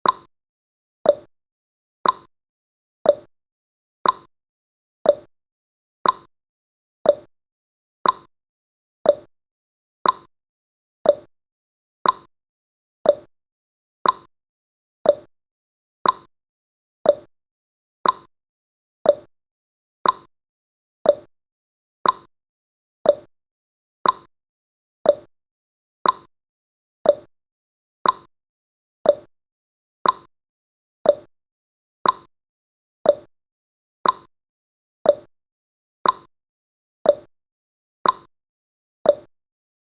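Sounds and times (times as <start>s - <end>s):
clock tick-tock: 0.0s - 0.3s, 1.0s - 1.3s, 2.0s - 2.3s, 3.0s - 3.3s, 4.0s - 4.3s, 5.0s - 5.3s, 6.0s - 6.3s, 7.0s - 7.3s, 8.0s - 8.3s, 9.0s - 9.3s, 10.0s - 10.3s, 11.0s - 11.3s, 12.0s - 12.3s, 13.0s - 13.3s, 14.0s - 14.3s, 15.0s - 15.3s, 16.0s - 16.3s, 17.0s - 17.3s, 18.0s - 18.3s, 19.0s - 19.3s, 20.0s - 20.3s, 21.0s - 21.3s, 22.0s - 22.3s, 23.0s - 23.3s, 24.0s - 24.3s, 25.0s - 25.3s, 26.0s - 26.3s, 27.0s - 27.3s, 28.0s - 28.3s, 29.0s - 29.3s, 30.0s - 30.3s, 31.0s - 31.3s, 32.0s - 32.3s, 33.0s - 33.3s, 34.0s - 34.3s, 35.0s - 35.3s, 36.0s - 36.3s, 37.0s - 37.3s, 38.0s - 38.3s, 39.0s - 39.4s.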